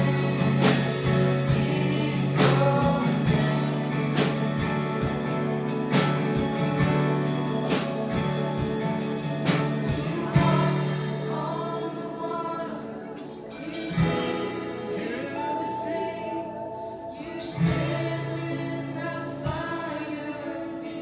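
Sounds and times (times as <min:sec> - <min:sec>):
voices singing together: 0:00.0 - 0:04.6, 0:09.8 - 0:21.0
band with steady drum beat: 0:00.0 - 0:11.5, 0:13.5 - 0:15.0, 0:17.6 - 0:18.5, 0:19.4 - 0:19.9.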